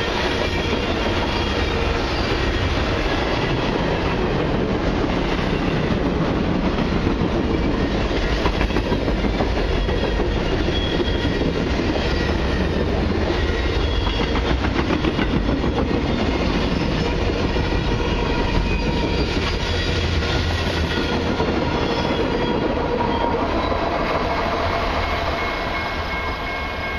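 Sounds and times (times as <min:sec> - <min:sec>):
train wheels clacking over rail joints: 0:04.7 - 0:22.6.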